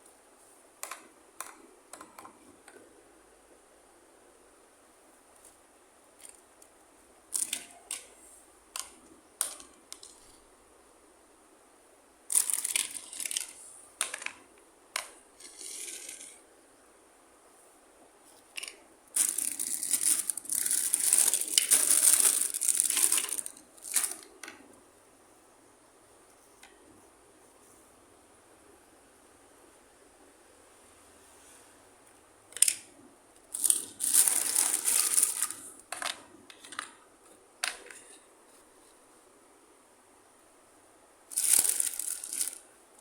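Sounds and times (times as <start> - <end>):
plastic toy pieces clicking: 7.4 - 8.1, 12.3 - 14.4, 15.0 - 16.4, 18.5 - 24.3, 33.6 - 36.9, 41.3 - 42.6
plastic packaging crinkling: 12.3 - 14.4, 18.5 - 24.4, 33.5 - 35.8, 41.3 - 42.7.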